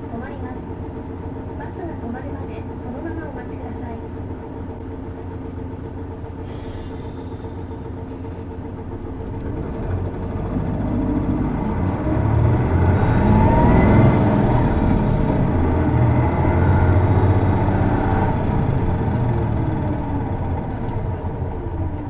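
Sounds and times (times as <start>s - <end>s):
bus diesel engine accelerating: 0.0s - 22.0s
rising engine whine: 6.1s - 22.0s.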